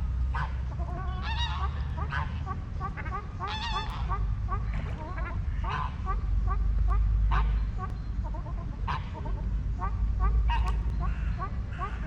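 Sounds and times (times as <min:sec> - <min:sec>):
birds peeping: 0:00.0 - 0:12.0
geese honking: 0:00.0 - 0:12.0
low rumble: 0:00.0 - 0:12.0.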